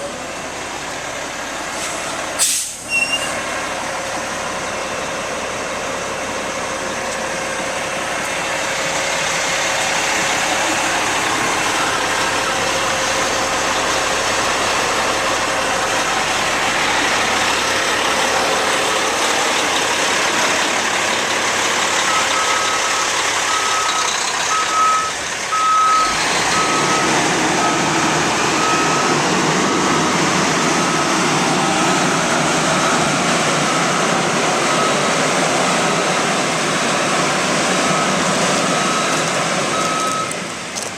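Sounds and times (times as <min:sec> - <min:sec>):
diesel truck engine running: 0:00.0 - 0:40.9
reversing alarm beeping: 0:11.6 - 0:12.9, 0:22.0 - 0:29.5, 0:30.6 - 0:31.9, 0:32.6 - 0:36.2, 0:37.8 - 0:40.4.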